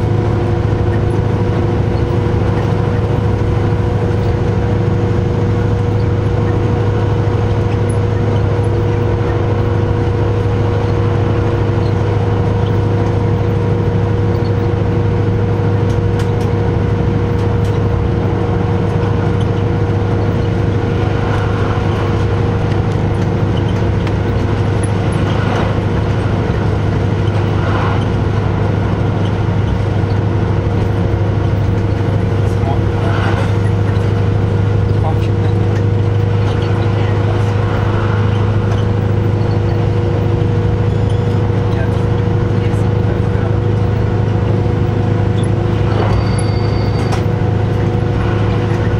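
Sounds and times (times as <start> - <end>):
railcar engine hum: 0.0 - 48.9
high-pitched whine: 45.2 - 48.9.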